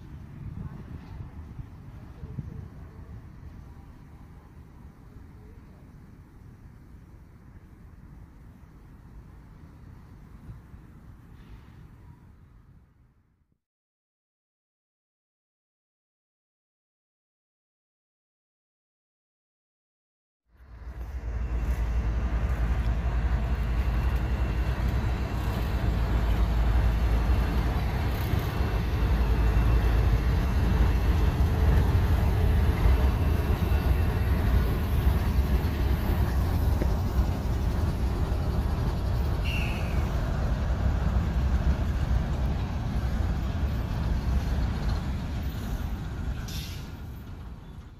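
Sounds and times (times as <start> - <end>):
train rumbling past: 20.5 - 47.9
train squeal: 23.2 - 41.1, 43.2 - 47.9.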